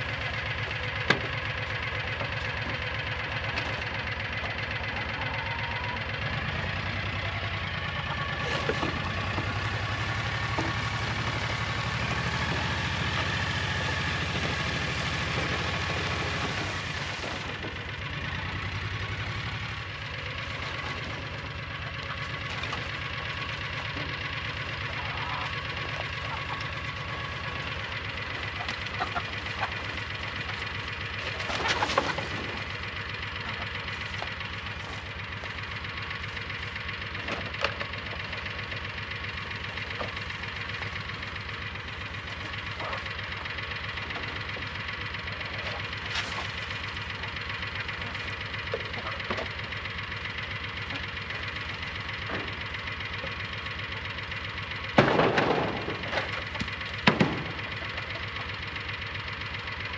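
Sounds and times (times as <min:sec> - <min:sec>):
engine running steadily: 0:00.0 - 0:59.9
loud clatter: 0:08.4 - 0:41.3, 0:54.8 - 0:58.7
knocks and rattles: 0:19.0 - 0:35.2, 0:54.9 - 0:58.6.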